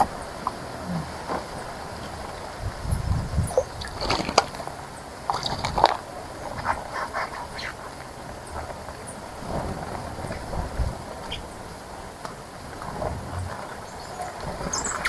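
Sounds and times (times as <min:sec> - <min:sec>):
birds splashing in water: 0:03.4 - 0:15.0.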